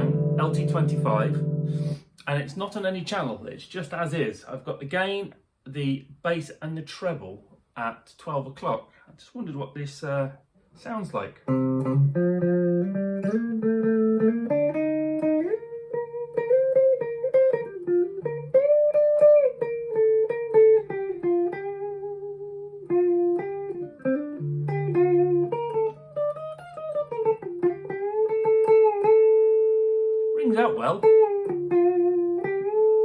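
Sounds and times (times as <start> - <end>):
clean electric guitar line: 0.0 - 2.0, 11.4 - 33.0.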